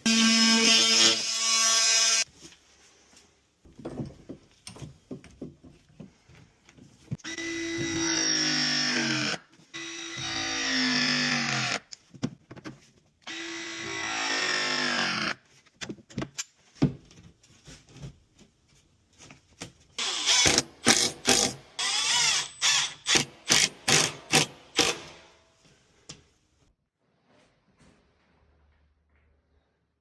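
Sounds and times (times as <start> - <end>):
power drill whirring: 20.0 - 25.1.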